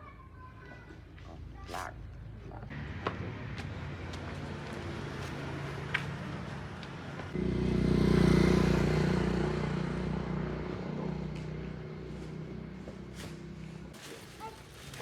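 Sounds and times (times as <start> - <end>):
vehicle engine humming: 2.7 - 14.0
vehicle engine passing by: 2.7 - 14.0.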